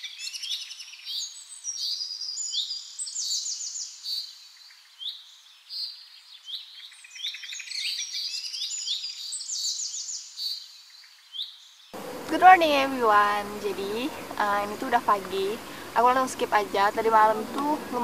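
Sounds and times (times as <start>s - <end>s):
birds chirping and trilling: 0.0s - 18.0s.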